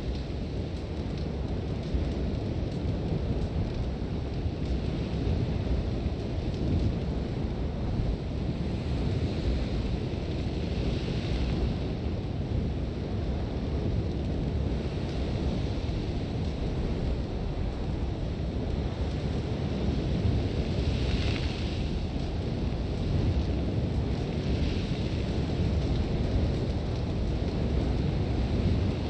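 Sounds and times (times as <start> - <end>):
gusting wind rumble: 0.0 - 29.0.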